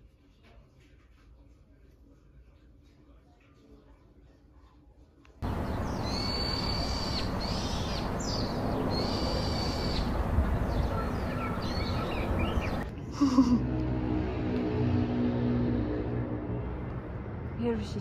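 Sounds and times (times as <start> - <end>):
birds calling: 5.4 - 12.8
steady rushing noise: 5.4 - 12.8.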